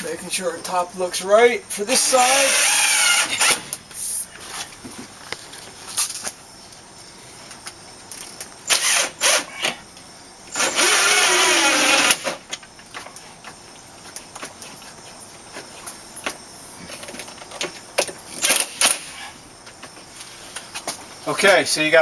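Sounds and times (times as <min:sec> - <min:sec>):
power drill driving screws: 0:01.9 - 0:03.8, 0:08.7 - 0:09.8, 0:10.5 - 0:12.4.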